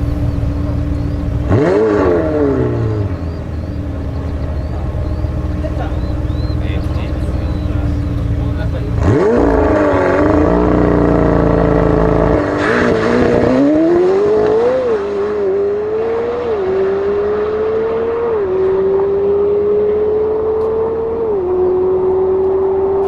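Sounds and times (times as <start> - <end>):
car engine accelerating hard: 0.0 - 23.0.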